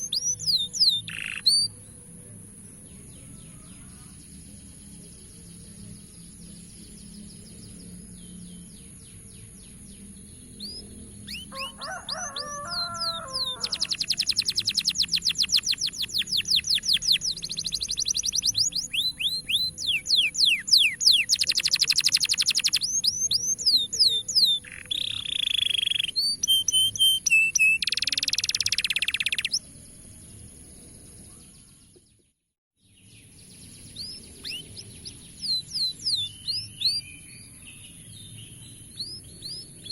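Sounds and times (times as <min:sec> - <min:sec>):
steady high-pitched whine: 0:00.0 - 0:11.8
canary singing trills: 0:00.0 - 0:29.8, 0:33.2 - 0:39.9.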